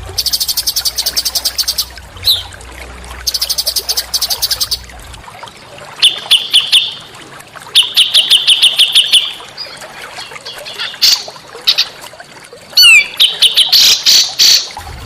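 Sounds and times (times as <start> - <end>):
songbirds chirping: 0.1 - 2.6, 3.2 - 5.1.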